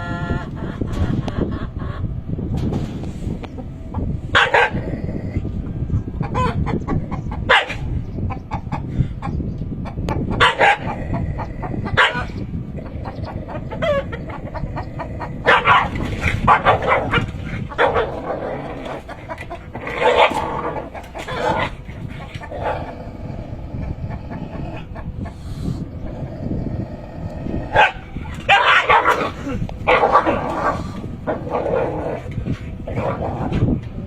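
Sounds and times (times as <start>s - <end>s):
steady low rumble: 0.0s - 34.0s
rooster squawking and clucking: 9.9s - 33.8s.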